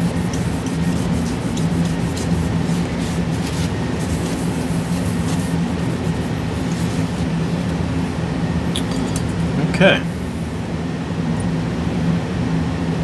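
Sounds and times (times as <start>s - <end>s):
faint rubbing strokes: 0.0s - 7.7s
machine whirring with hum: 0.0s - 13.0s.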